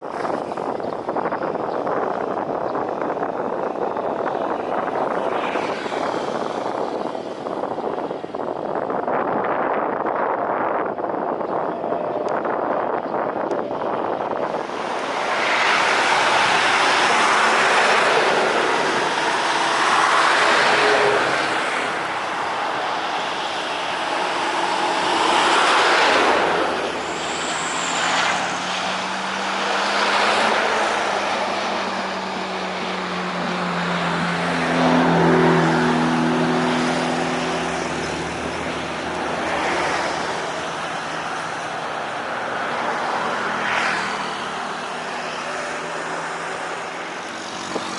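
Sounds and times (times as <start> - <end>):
motor vehicles passing: 0.0 - 47.9
steady engine tone: 10.8 - 43.4.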